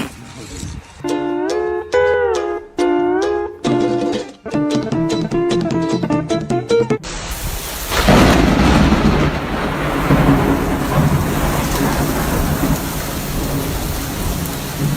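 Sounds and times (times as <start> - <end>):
heavy rain falling: 7.1 - 14.9
thunder rumble: 7.1 - 14.9.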